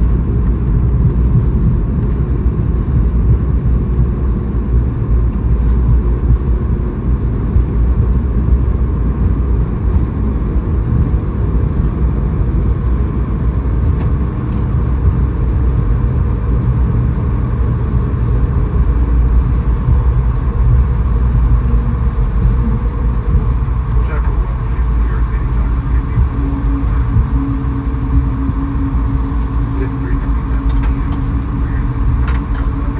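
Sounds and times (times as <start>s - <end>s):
airplane cabin rumble: 0.0s - 32.9s
high wavering squeaks: 21.2s - 24.9s, 28.6s - 29.9s.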